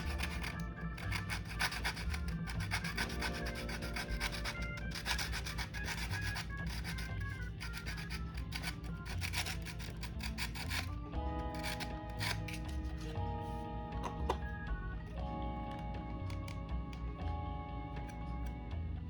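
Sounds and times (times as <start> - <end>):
fast scratchy rubbing: 0.0 - 13.5
background music with steady beat: 0.0 - 19.0.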